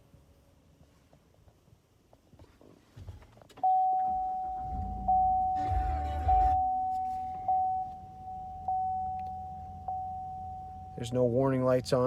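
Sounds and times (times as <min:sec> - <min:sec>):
dashboard warning chime: 0:03.6 - 0:12.0
low rumble: 0:04.4 - 0:11.0.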